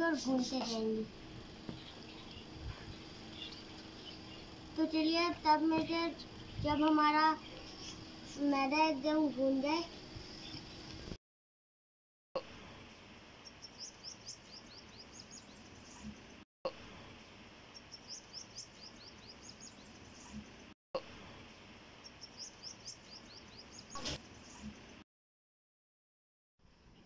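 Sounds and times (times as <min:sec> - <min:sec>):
outdoor background noise: 0:00.0 - 0:11.2, 0:12.4 - 0:25.0
bird chirping: 0:01.7 - 0:04.8, 0:06.2 - 0:08.6, 0:13.4 - 0:16.3, 0:17.7 - 0:20.6, 0:22.0 - 0:24.7.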